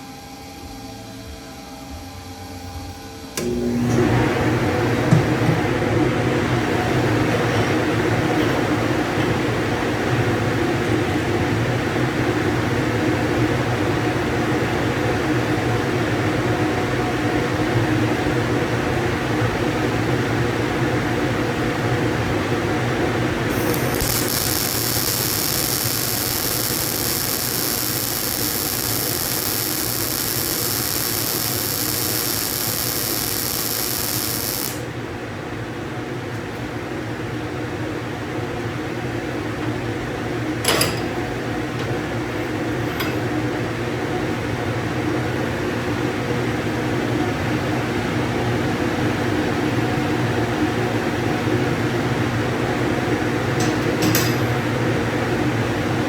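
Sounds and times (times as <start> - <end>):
high-pitched whine: 0.0 - 3.7, 23.5 - 34.9
electric power drill running: 23.5 - 34.9.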